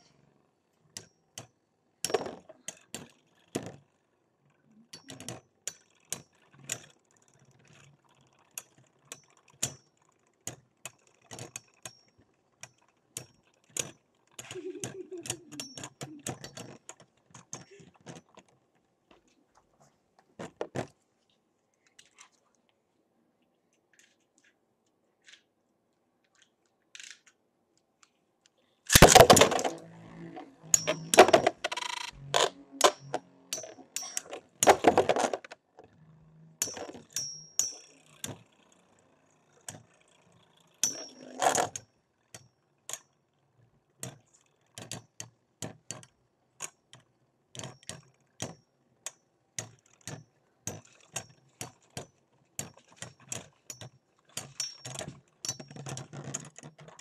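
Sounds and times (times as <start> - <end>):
metal spinning tops clashing: 14.4 - 16.6, 30.6 - 35.4, 36.6 - 38.5, 40.7 - 41.7, 54.4 - 55.8.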